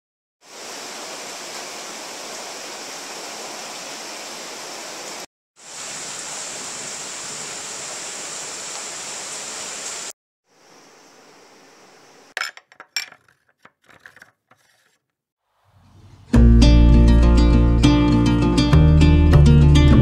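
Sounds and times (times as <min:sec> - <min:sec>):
heavy rain pouring: 0:00.4 - 0:10.1.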